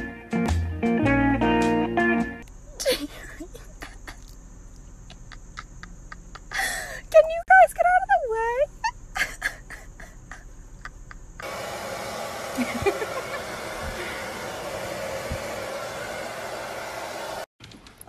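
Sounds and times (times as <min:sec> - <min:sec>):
hair dryer blowing: 0:11.4 - 0:17.5.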